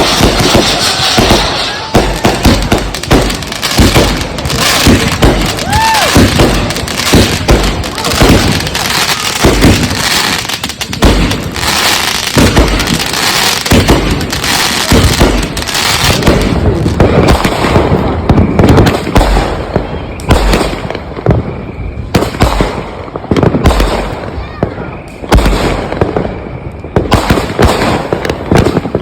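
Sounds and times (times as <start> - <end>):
fireworks booming: 0.0 - 29.0
fireworks crackling: 0.0 - 29.0.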